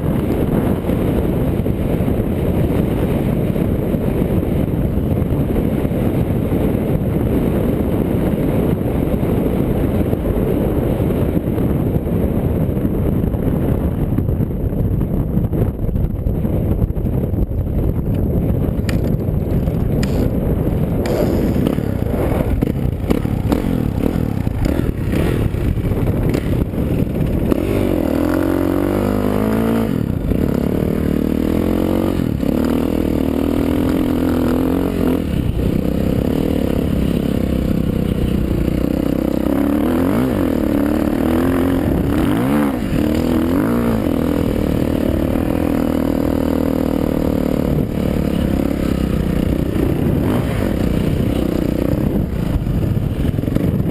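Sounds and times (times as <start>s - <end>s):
motocross bike engine revving: 20.9s - 53.9s.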